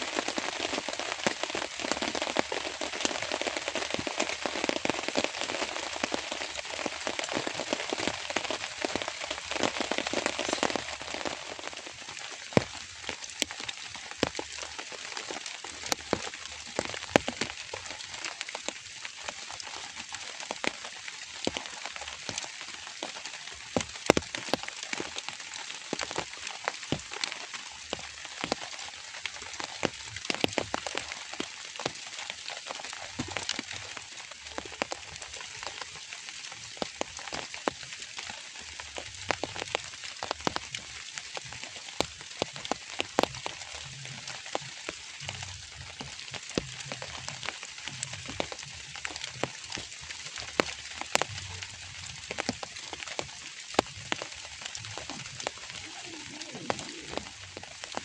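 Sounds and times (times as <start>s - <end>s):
raindrop hits: 0.0s - 18.8s, 32.6s - 35.8s, 36.8s - 58.0s
steady rain falling: 0.0s - 58.0s.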